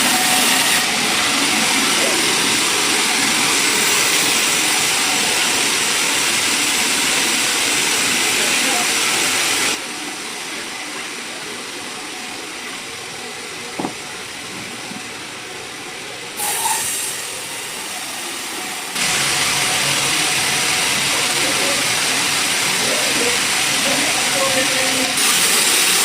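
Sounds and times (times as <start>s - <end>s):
sawmill machinery hissing: 0.0s - 26.0s
short knock: 13.8s - 14.0s.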